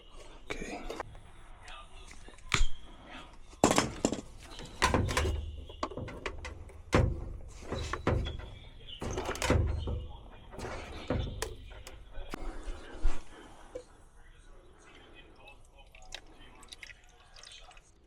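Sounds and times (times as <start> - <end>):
dull thuds: 3.6 - 12.4
knocks and clunks on plastic pump: 3.6 - 12.4.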